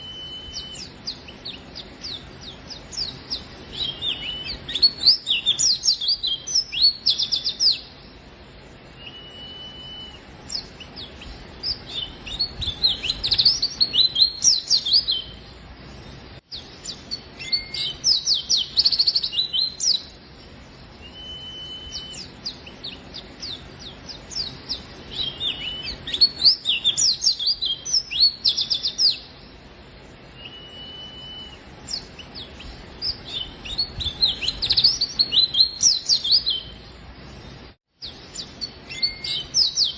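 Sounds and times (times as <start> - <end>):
whistled bird note: 0.0 - 2.2, 3.7 - 7.9, 9.0 - 15.4, 16.9 - 20.0, 21.0 - 23.0, 30.3 - 32.1, 38.4 - 39.9
bird twittering: 0.0 - 8.2, 8.9 - 15.5, 16.5 - 20.2, 20.9 - 29.5, 30.3 - 36.9, 38.0 - 39.9.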